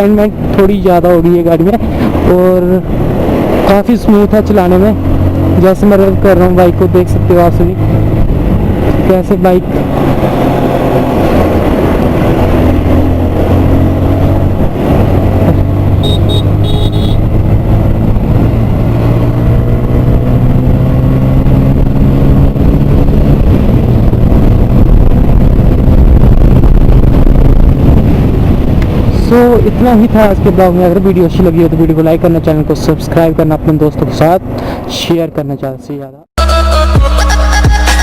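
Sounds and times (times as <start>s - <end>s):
motorcycle engine running: 14.2s - 28.6s.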